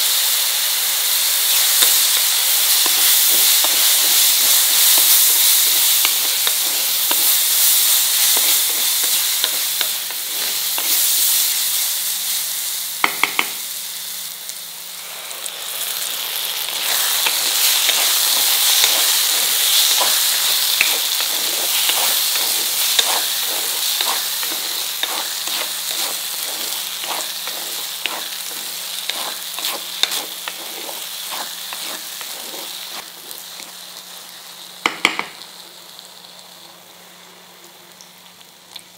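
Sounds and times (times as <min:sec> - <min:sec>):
corn paste sizzling in oil: 0:00.0 - 0:38.9
spatula scraping a pan: 0:01.5 - 0:11.6, 0:16.6 - 0:33.7.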